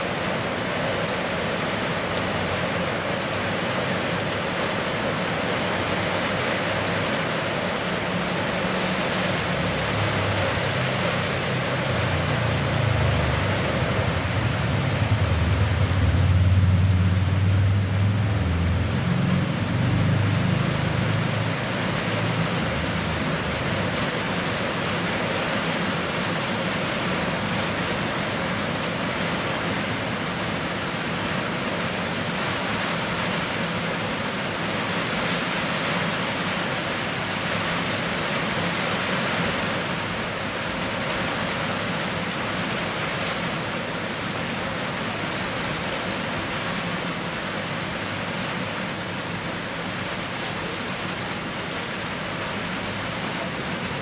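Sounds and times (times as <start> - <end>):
rain on ground and puddles: 0.0 - 54.0.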